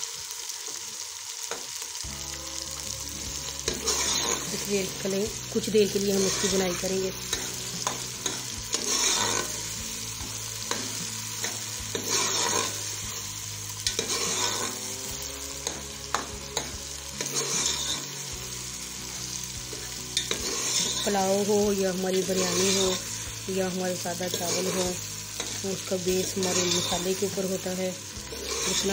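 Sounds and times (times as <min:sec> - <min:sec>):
vegetables sizzling in oil: 0:00.0 - 0:28.9
metal spoon scraping pot: 0:06.0 - 0:09.7, 0:10.6 - 0:12.9, 0:13.8 - 0:14.8, 0:15.6 - 0:18.1, 0:19.7 - 0:21.2, 0:22.2 - 0:23.1, 0:28.3 - 0:28.9.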